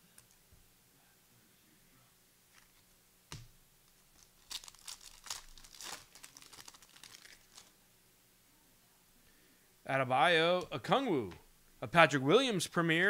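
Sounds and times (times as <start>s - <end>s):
plastic wrapper tearing and crinkling: 3.9s - 7.7s.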